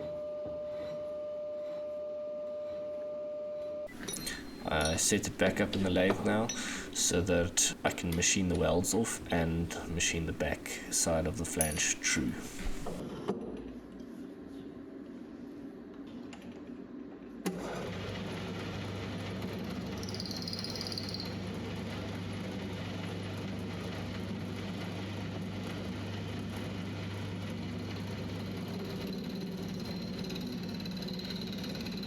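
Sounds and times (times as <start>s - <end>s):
lathe motor hum: 3.9s - 13.0s
thin high tone: 3.9s - 13.0s.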